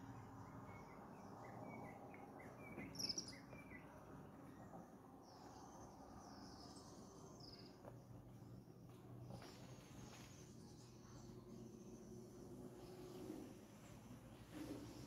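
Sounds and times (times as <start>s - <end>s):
small birds chirping: 0.0s - 8.4s
faint forest ambience: 0.0s - 15.0s.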